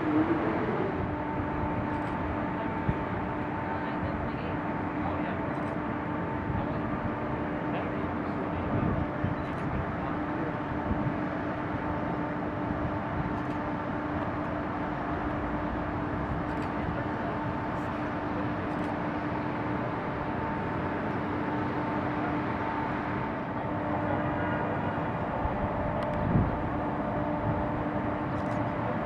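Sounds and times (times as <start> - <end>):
engine humming: 0.0 - 3.7.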